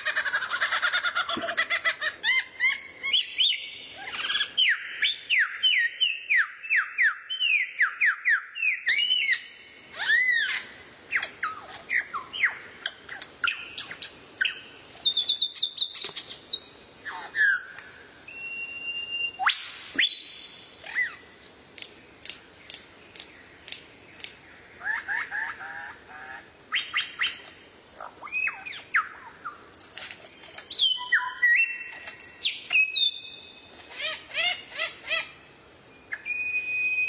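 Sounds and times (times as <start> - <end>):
songbird trill and whistles: 2.2 - 21.2, 28.2 - 35.3, 35.9 - 37.0.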